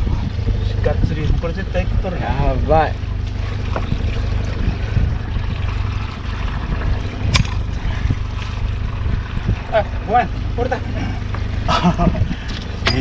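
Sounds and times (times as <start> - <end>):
boat engine rumble: 0.0 - 13.0
water sloshing: 2.6 - 13.0.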